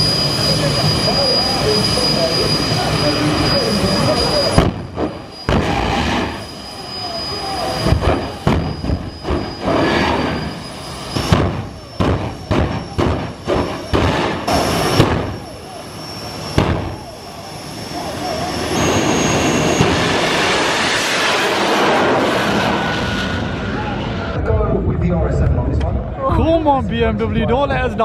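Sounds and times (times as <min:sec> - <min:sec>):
thin high whine: 0:00.0 - 0:24.4
engine and crowd noise: 0:00.0 - 0:28.0
exhaust bangs and pops: 0:11.1 - 0:15.5, 0:16.6 - 0:17.0.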